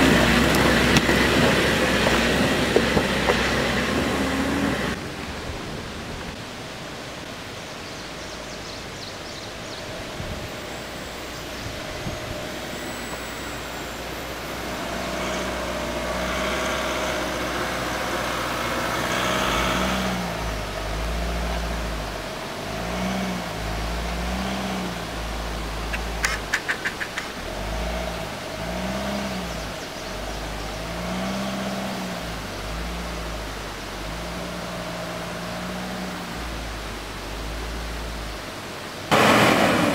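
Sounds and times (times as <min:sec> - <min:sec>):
suv engine revving: 0:00.0 - 0:39.9
sharp clicks or rattles: 0:25.9 - 0:27.4.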